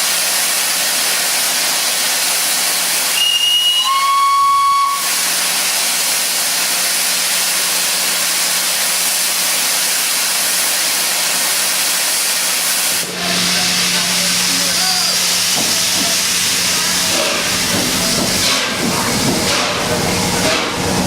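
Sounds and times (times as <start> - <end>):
loud hiss of steam: 0.0 - 21.0
steam whistle: 3.1 - 5.2.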